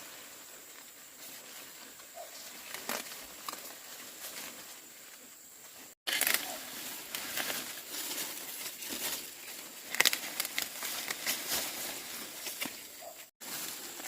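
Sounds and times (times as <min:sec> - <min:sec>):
rustling and crinkling with snaps: 0:01.2 - 0:05.3, 0:05.9 - 0:14.0.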